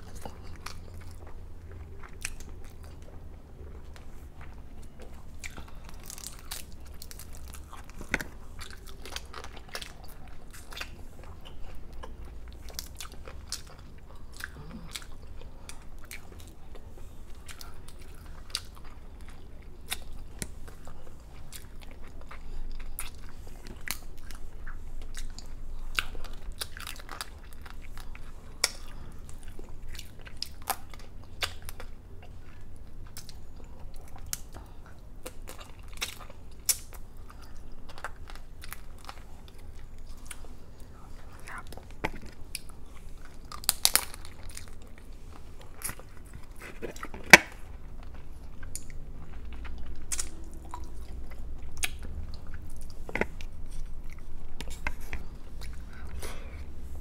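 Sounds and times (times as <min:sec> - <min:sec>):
chewing and biting: 0:00.0 - 0:56.8
shells cracking and crunching: 0:43.5 - 0:44.8.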